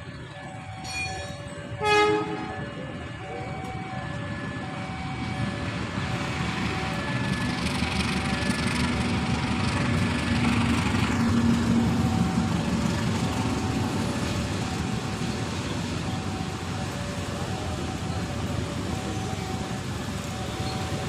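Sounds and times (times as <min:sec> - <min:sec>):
passenger train rumbling: 0:00.0 - 0:21.0
two-tone crossing alarm: 0:00.0 - 0:21.0.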